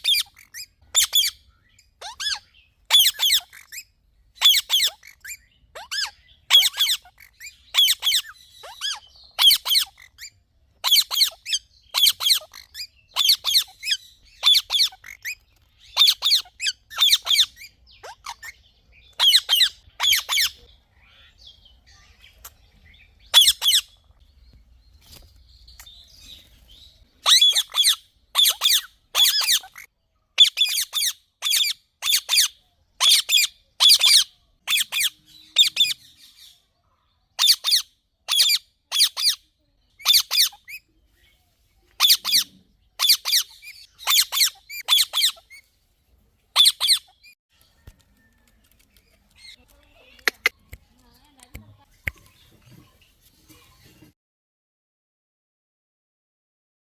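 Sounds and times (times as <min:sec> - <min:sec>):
parakeet squawking: 0:00.0 - 0:01.4, 0:02.0 - 0:21.4, 0:23.3 - 0:24.0, 0:27.2 - 0:36.0, 0:37.4 - 0:39.4, 0:40.0 - 0:40.8, 0:42.0 - 0:45.7, 0:46.6 - 0:47.2, 0:49.4 - 0:50.5.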